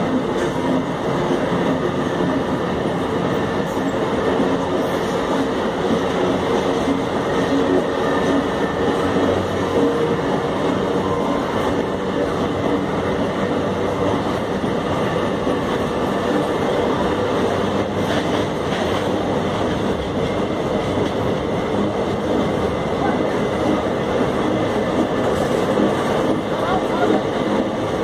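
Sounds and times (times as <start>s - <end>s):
train wagons rumbling and rattling: 0.0s - 28.0s
train wheel clacks: 0.0s - 28.0s.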